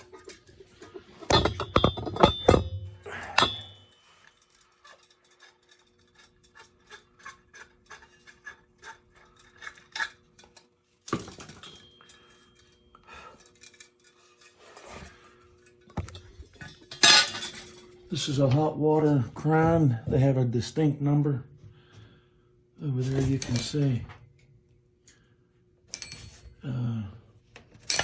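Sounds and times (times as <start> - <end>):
metal parts clinking: 0.0 - 15.0, 15.6 - 18.5, 23.0 - 24.0, 25.9 - 26.6, 27.7 - 28.0.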